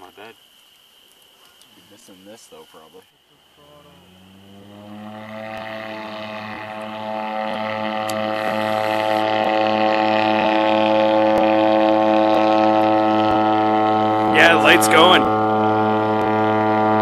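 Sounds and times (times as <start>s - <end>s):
propeller engine drone: 3.8s - 17.0s.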